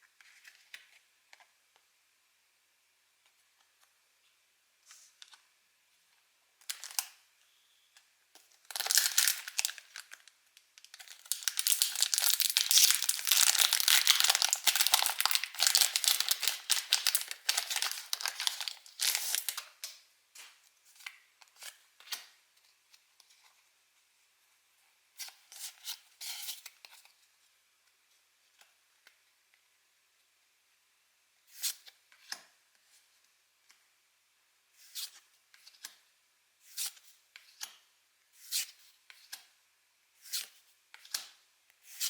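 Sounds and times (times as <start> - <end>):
foil wrapper tearing and crinkling: 8.7 - 19.6.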